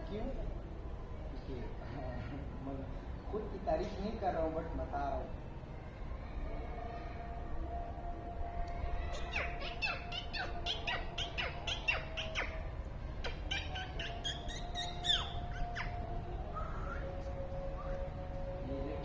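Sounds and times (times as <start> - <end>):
birds chirping: 8.8 - 19.0.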